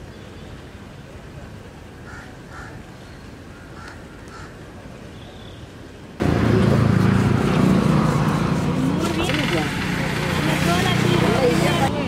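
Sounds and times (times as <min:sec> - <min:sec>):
loud background noise: 0:05.8 - 0:12.0.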